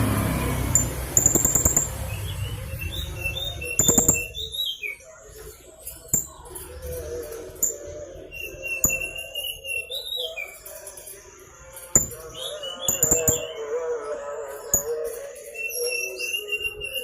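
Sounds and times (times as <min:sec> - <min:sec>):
sharp clicks: 0:00.7 - 0:02.1.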